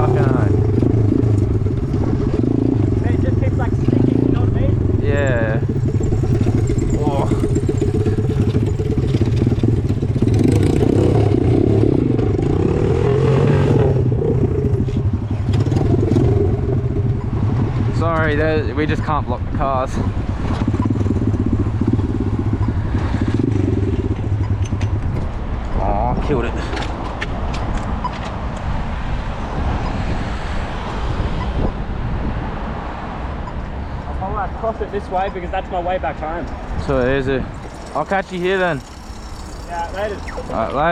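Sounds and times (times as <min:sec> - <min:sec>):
small motorcycle engine revving: 0:00.0 - 0:18.0, 0:20.3 - 0:25.1, 0:36.6 - 0:40.9
wind rumbling on microphone: 0:00.0 - 0:34.6
road vehicle noise: 0:00.0 - 0:40.9.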